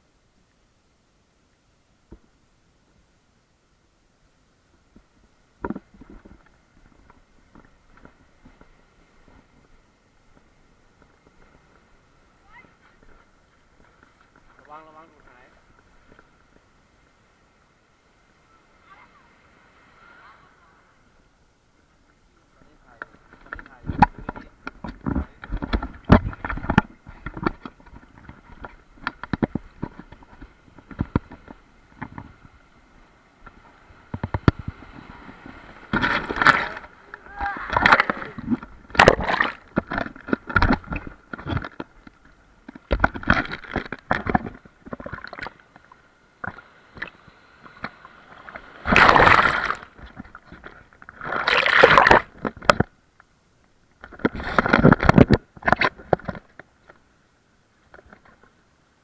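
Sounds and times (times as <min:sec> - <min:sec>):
water gurgling: 0:21.9 - 0:32.5, 0:33.4 - 0:53.0
water sloshing and splashing: 0:33.4 - 0:52.9, 0:54.0 - 0:56.6.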